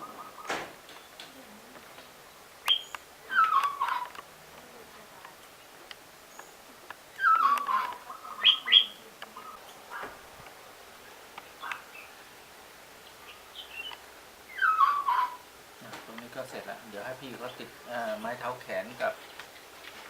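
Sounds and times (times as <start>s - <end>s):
animal wavering cry: 3.3s - 4.1s, 7.2s - 10.1s, 14.5s - 15.5s.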